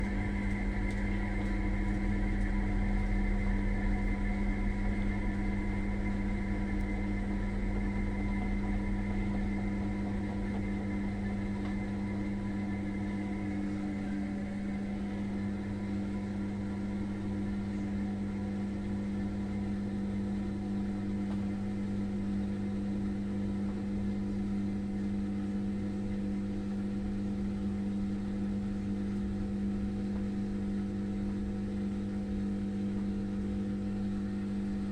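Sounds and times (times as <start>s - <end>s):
washing machine humming: 0.0s - 34.9s.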